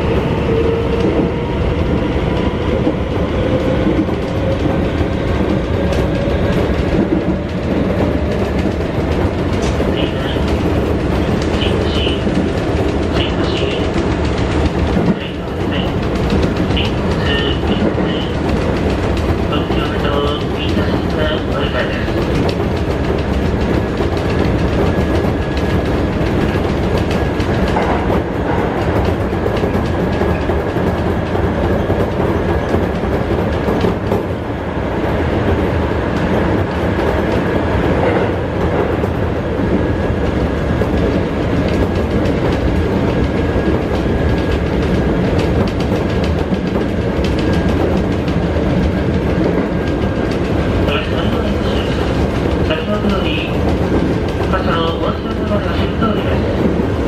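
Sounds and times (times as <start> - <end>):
train wheels and motors rumbling: 0.0 - 57.0.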